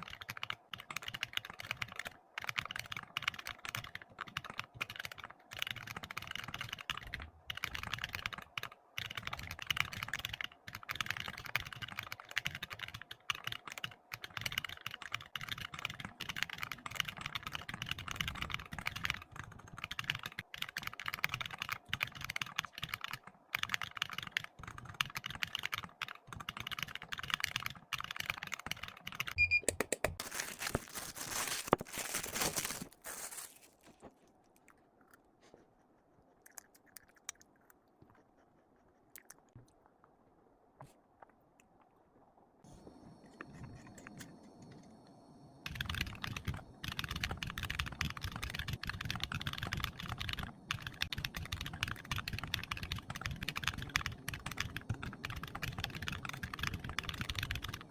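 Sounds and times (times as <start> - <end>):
typing on computer keyboard: 0.0 - 30.2, 43.4 - 57.9
brief high beep: 29.4 - 29.8.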